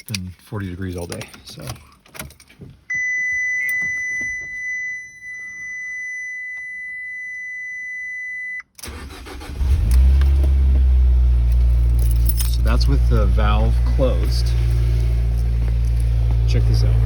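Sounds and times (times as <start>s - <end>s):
car engine cranking and starting: 8.7s - 17.0s.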